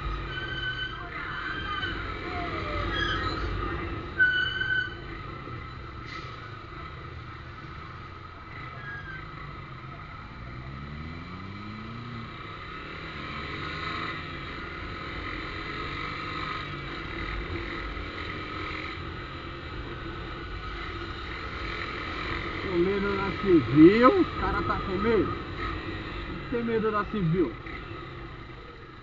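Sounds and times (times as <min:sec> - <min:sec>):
motorcycle engine revving: 0:08.5 - 0:29.0.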